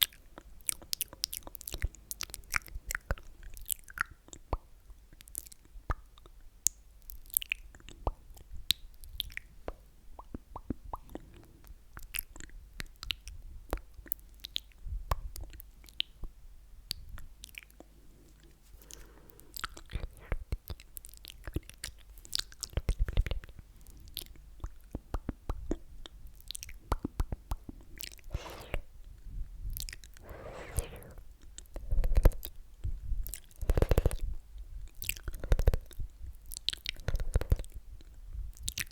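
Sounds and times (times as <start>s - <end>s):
wet mouth clicks and smacks: 0.0s - 11.3s, 18.9s - 28.9s, 29.8s - 32.6s, 33.2s - 34.3s, 34.9s - 38.9s
wet breathy mouth sounds: 10.2s - 13.3s, 16.9s - 38.9s.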